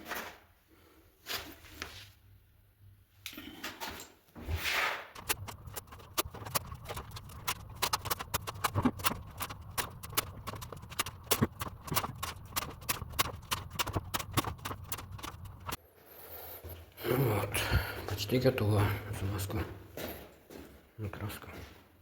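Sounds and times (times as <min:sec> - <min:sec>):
rapid irregular clicks and knocks: 0:05.2 - 0:15.8.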